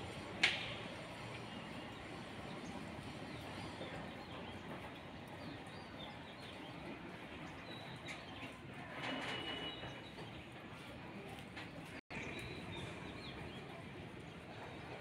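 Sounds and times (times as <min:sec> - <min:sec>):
small birds chirping: 0:12.1 - 0:15.0.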